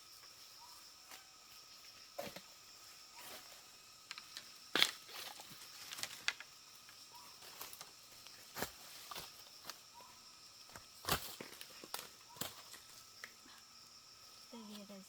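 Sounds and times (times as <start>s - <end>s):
high insect hum: 0.0s - 15.0s
crackles and knocks in undergrowth: 0.3s - 15.0s.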